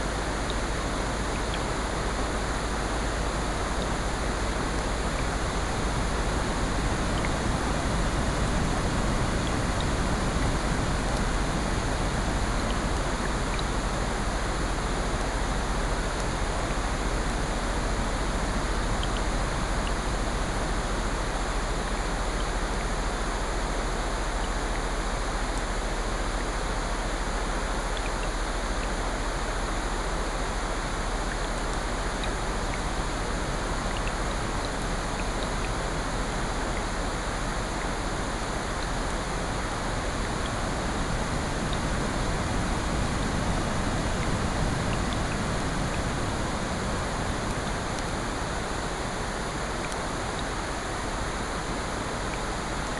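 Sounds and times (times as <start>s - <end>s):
heavy rain: 0.0s - 52.9s
ocean surf: 38.0s - 52.8s.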